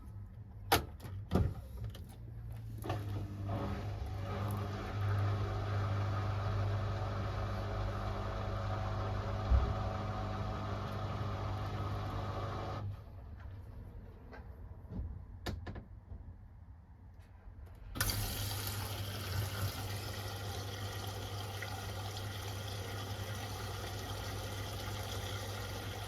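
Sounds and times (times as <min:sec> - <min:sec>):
washing machine electric hum: 0:01.9 - 0:13.7, 0:17.9 - 0:26.0.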